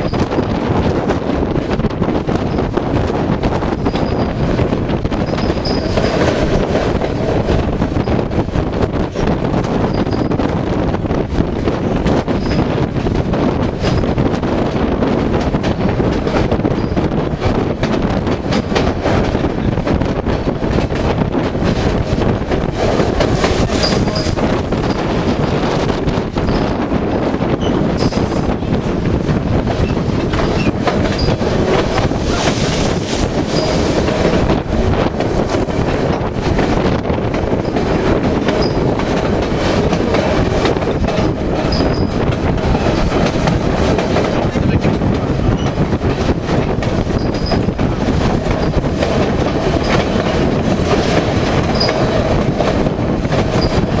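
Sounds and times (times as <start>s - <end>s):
train rumbling with wheel clatter: 0.0s - 54.0s
high wheel squeals: 33.5s - 33.8s, 41.7s - 42.1s.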